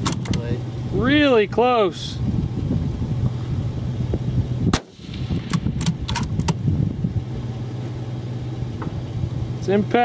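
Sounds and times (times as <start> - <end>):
low engine hum: 0.0 - 10.0
suppressed rifle shot: 4.7 - 6.0.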